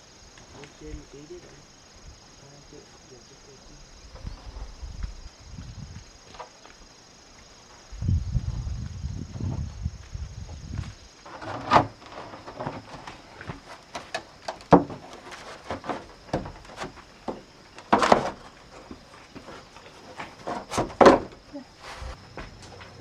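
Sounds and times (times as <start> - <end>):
loud wooden thuds: 11.3 - 23.0
wood knocking and clattering: 11.3 - 23.0.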